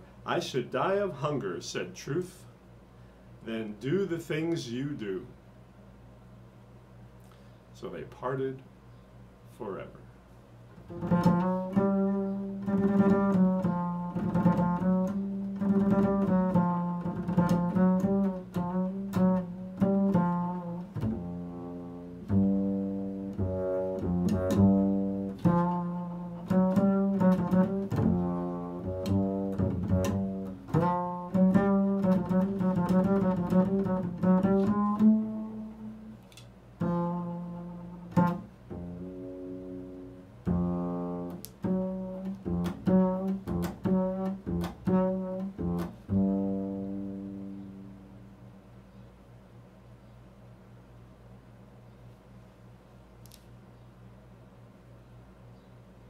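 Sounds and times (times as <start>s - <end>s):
plucked low string instrument: 10.9s - 36.1s, 36.8s - 48.1s.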